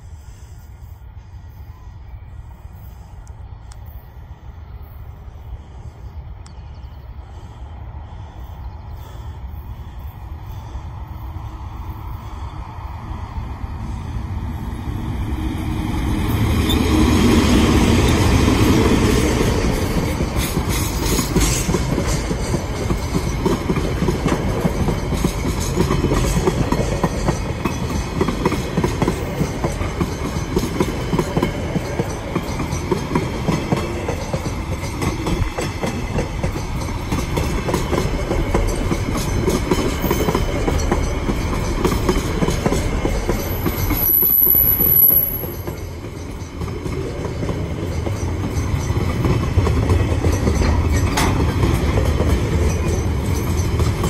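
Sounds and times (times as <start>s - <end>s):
diesel locomotive passing: 0.0s - 54.0s
train wheels clickety-clack: 13.4s - 54.0s.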